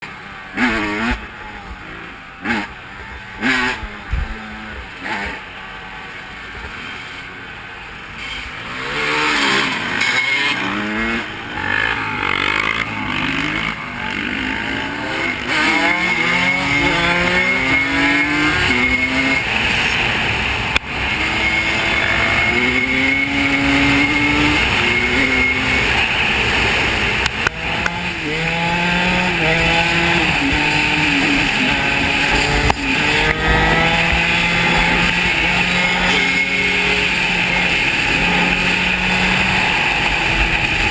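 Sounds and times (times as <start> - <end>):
off-road vehicle engine revving: 0.0 - 40.9.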